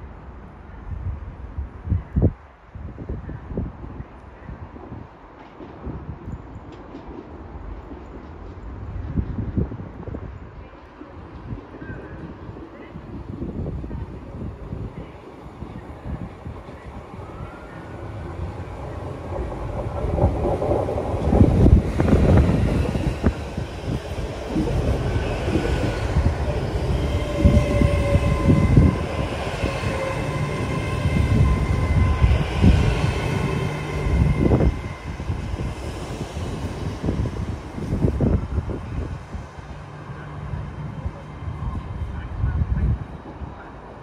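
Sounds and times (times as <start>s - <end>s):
diesel train engine: 10.8s - 44.0s.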